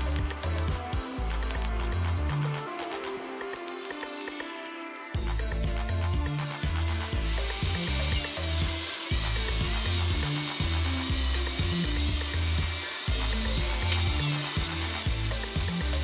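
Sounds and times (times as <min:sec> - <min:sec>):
background music with bassline: 0:00.0 - 0:16.0
metal being ground: 0:05.9 - 0:16.0.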